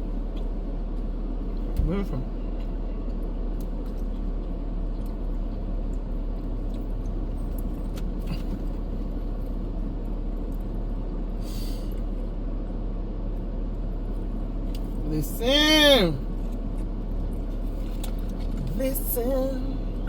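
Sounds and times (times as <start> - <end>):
low engine rumble: 0.0 - 20.0.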